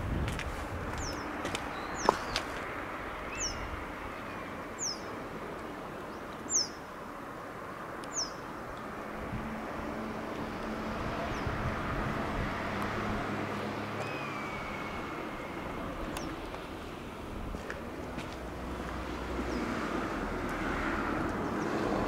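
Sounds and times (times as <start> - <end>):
bird high falling call: 14.0 - 16.3.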